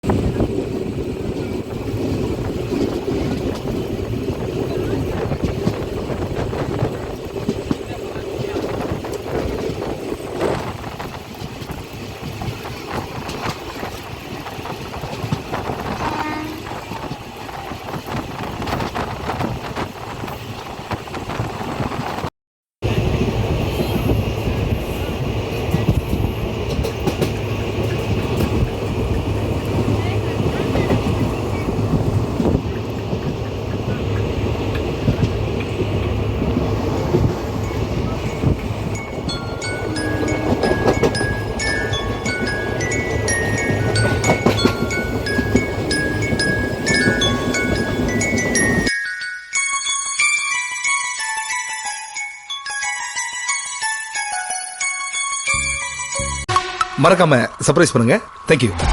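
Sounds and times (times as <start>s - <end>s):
train rumbling on rails: 0.0s - 48.9s
wheel clacks over rail joints: 1.1s - 19.9s, 34.6s - 48.9s.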